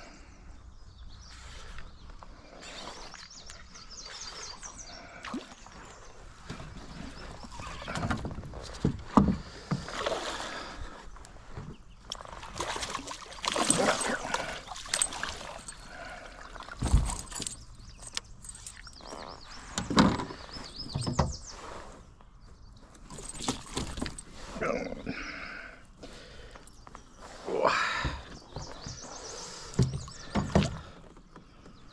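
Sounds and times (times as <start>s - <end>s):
water swishing and splashing: 2.5s - 19.8s.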